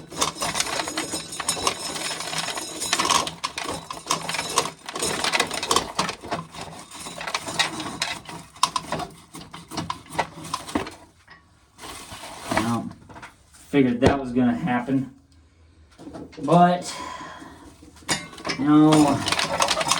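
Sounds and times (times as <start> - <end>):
corn sheller rattling: 0.0 - 11.2, 18.1 - 19.9.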